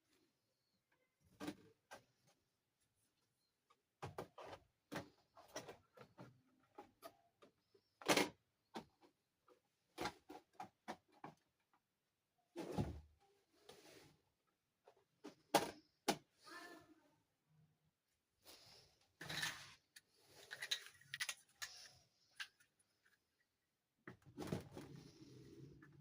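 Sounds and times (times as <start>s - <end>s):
plastic parts clicking and knocking: 19.2s - 23.3s.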